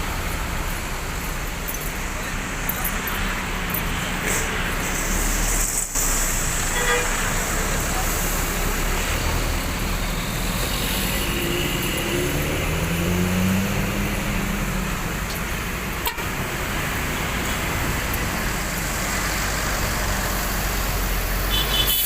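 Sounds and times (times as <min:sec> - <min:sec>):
bus engine hum rising in pitch: 0:00.0 - 0:22.0
road traffic noise: 0:00.0 - 0:22.0.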